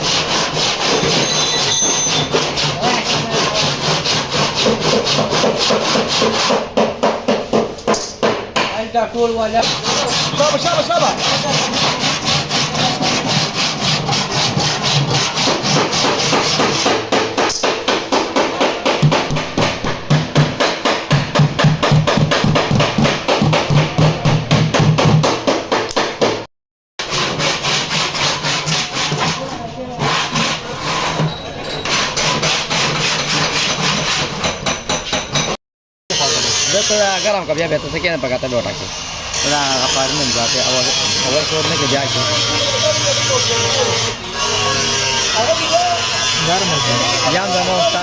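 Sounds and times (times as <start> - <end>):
hand sanding car bodywork: 0.0 - 1.3, 2.1 - 7.9, 8.8 - 19.0, 27.0 - 31.2.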